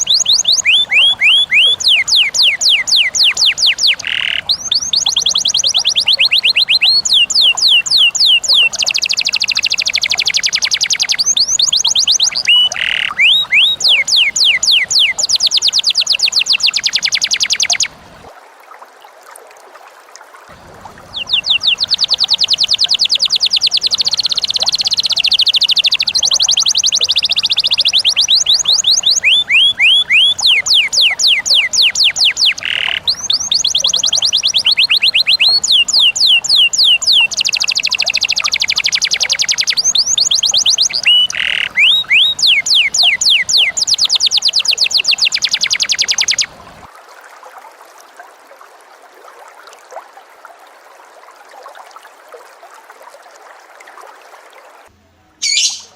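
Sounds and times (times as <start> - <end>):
bird singing whistled trills: 0.0 - 17.9, 21.0 - 46.6, 55.4 - 55.9.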